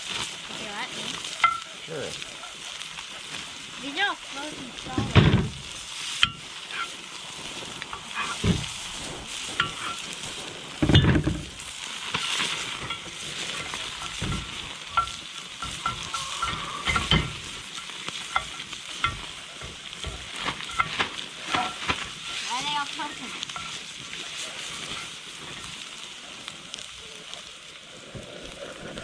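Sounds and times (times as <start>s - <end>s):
food sizzling in a frying pan: 0.0s - 29.0s
loud thump: 5.0s - 5.6s, 8.4s - 8.7s
kitchen utensils clinking: 12.8s - 23.8s.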